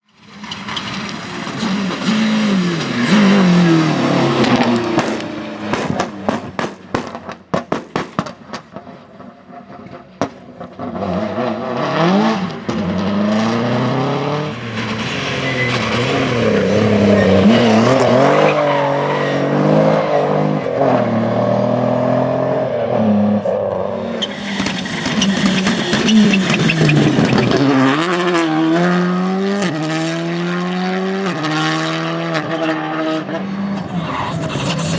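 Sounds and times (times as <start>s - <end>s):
rally car engines revving: 0.2s - 7.5s, 8.3s - 34.9s
hissing scrubbing sound: 24.2s - 27.7s, 33.2s - 34.9s.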